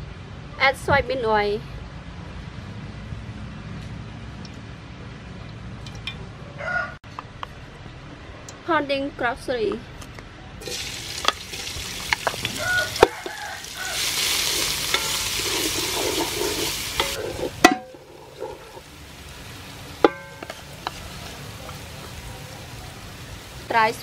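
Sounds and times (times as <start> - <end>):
spatula scraping pot: 10.6 - 18.9
spice paste sizzling in oil: 10.6 - 24.0.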